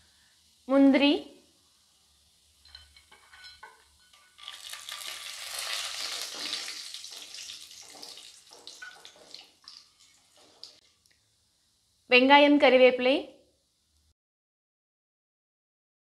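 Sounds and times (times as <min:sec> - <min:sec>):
nuts sizzling in hot oil: 0:00.0 - 0:10.8.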